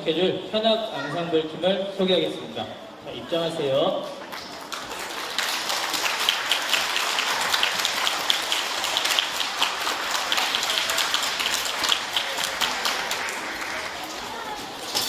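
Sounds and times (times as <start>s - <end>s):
audience applauding: 4.4s - 14.7s.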